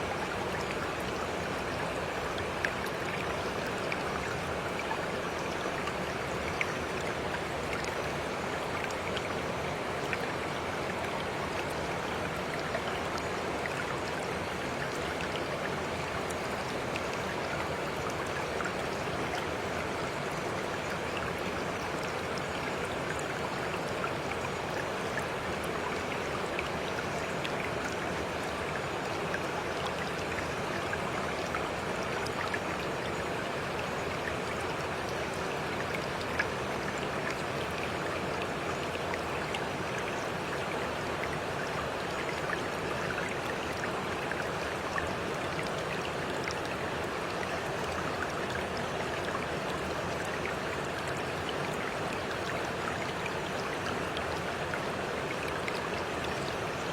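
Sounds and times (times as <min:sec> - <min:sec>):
stream flowing: 0:00.0 - 0:56.9.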